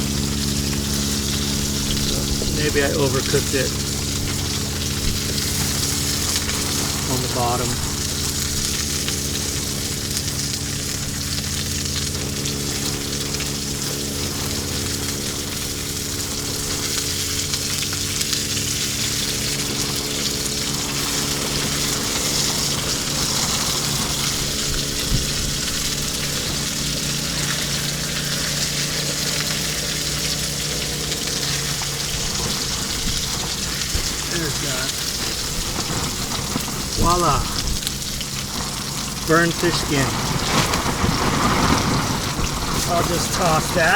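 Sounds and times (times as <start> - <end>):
fish sizzling in a pan: 0.0 - 43.9
low hum: 0.0 - 43.9.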